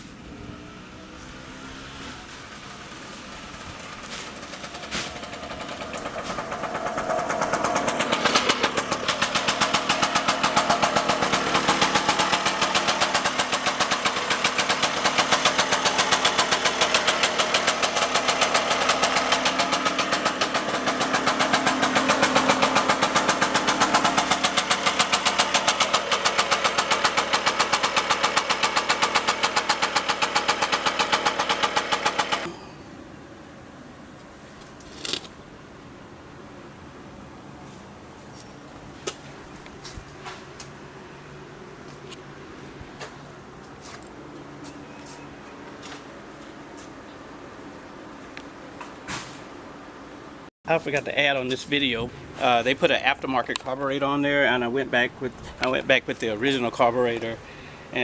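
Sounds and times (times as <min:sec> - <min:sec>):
two-stroke scooter engine running: 0:02.3 - 0:32.8.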